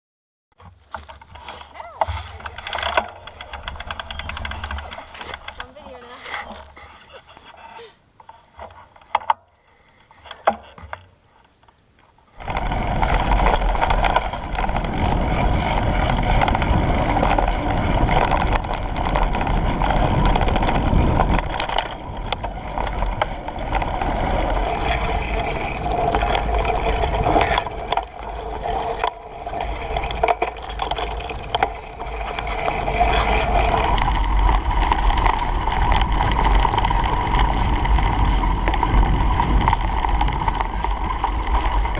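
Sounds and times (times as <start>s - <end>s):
wind buffeting microphone: 12.4s - 41.9s.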